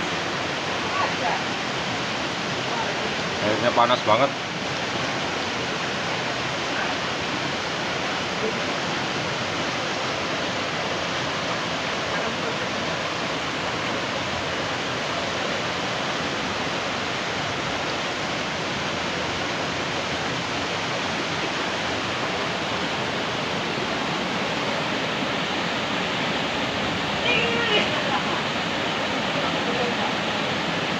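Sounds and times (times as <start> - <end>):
falling water rushing: 0.0 - 30.9.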